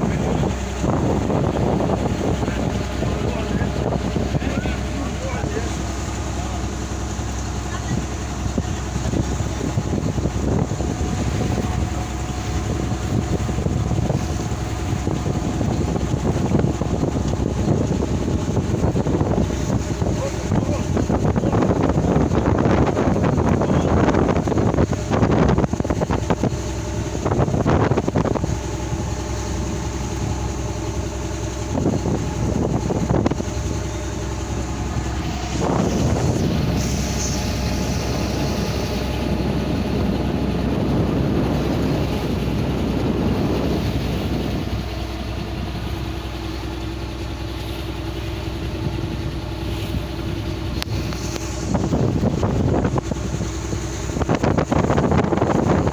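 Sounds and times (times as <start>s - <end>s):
boat motor running: 0.0s - 55.9s
wind buffeting microphone: 0.0s - 55.9s.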